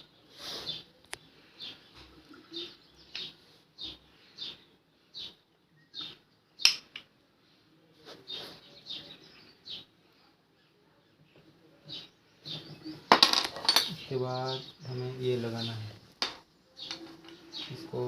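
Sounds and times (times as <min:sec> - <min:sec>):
small bird chirping: 0:00.0 - 0:06.9, 0:11.8 - 0:18.0.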